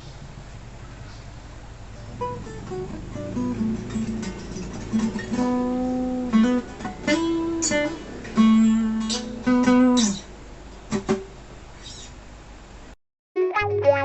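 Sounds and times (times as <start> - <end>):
acoustic guitar playing: 1.8 - 11.5, 13.4 - 14.0.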